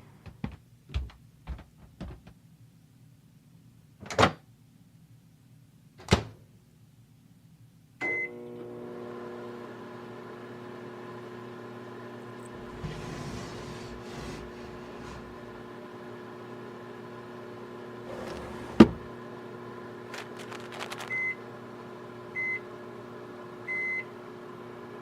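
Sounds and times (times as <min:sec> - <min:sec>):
microwave oven humming: 0:08.0 - 0:25.0.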